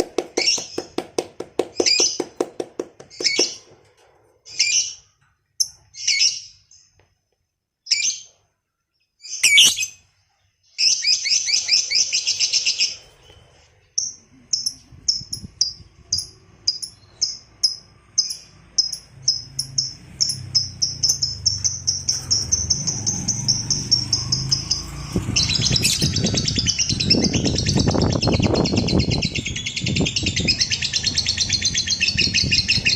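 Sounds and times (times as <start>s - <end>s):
lovebird chirping and trilling: 3.1s - 3.6s, 4.5s - 6.9s, 7.8s - 8.4s, 9.2s - 32.9s.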